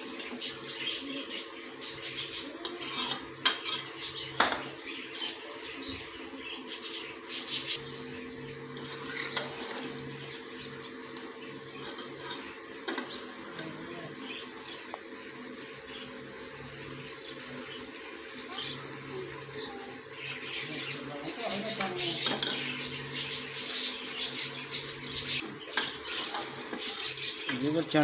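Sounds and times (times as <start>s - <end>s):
chickpeas sizzling in oil: 0.0s - 28.0s
ladle scraping and clinking pot: 2.6s - 4.0s.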